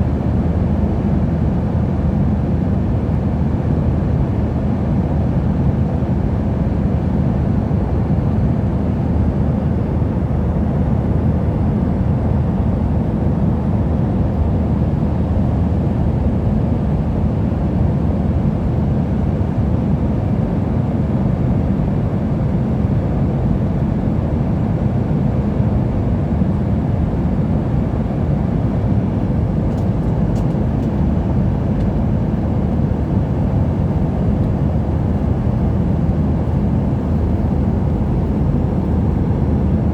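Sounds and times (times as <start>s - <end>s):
airliner cabin rumble: 25.8s - 39.9s.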